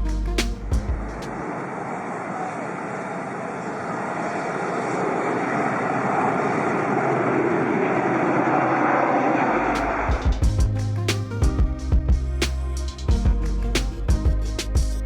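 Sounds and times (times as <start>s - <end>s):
music with bass and drums: 0.0s - 1.4s, 9.8s - 15.0s
airplane engines running: 0.0s - 14.8s.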